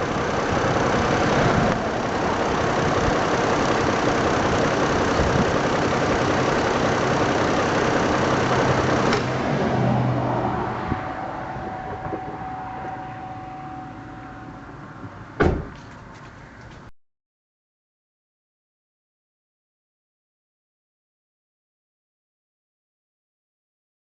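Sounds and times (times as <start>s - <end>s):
car engine running: 0.0s - 16.9s.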